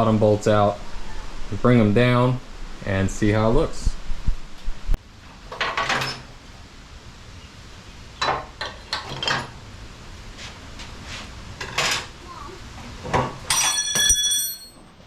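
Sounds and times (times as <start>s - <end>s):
hand tools and metal parts clattering: 5.3s - 6.4s, 8.2s - 9.6s, 11.6s - 12.2s, 12.8s - 15.0s.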